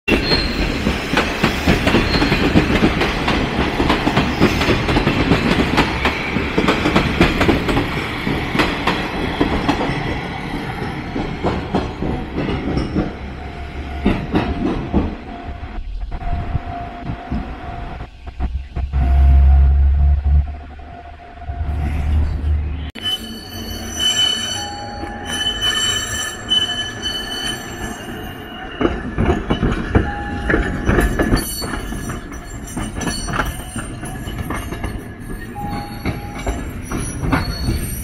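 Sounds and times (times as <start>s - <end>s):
train wheels clattering over rails: 0.1s - 15.4s, 28.8s - 38.0s.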